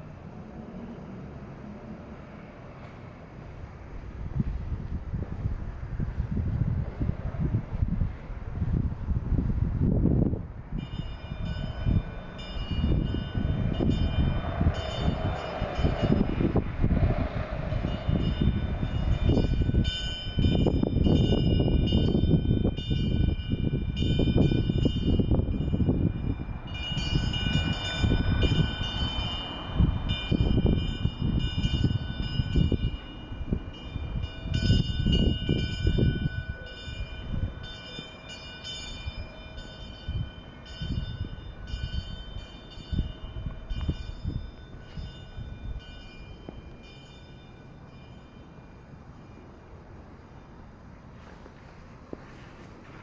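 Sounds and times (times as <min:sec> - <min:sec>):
wind buffeting microphone: 0:03.0 - 0:53.0
thin high ringing: 0:17.9 - 0:49.6.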